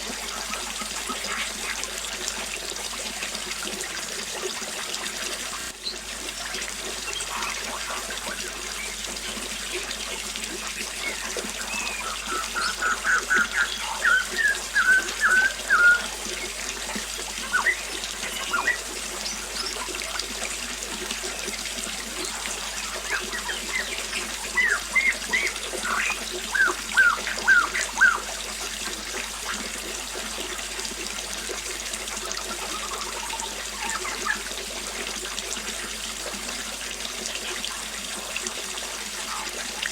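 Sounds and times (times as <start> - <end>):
small waterfall splashing: 0.0 - 39.9
birds chirping: 10.7 - 20.0, 22.3 - 28.3, 32.6 - 34.5.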